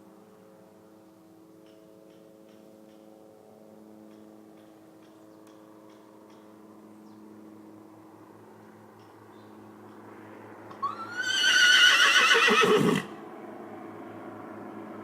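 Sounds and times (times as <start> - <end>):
soft light ticks: 1.6 - 3.1.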